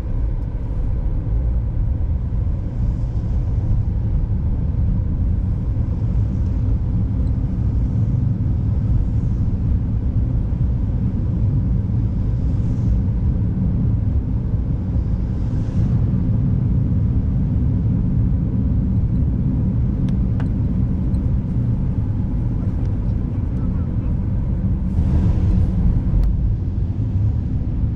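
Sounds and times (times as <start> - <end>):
car driving rumble: 0.0 - 27.9
tyre and road noise: 17.7 - 27.9.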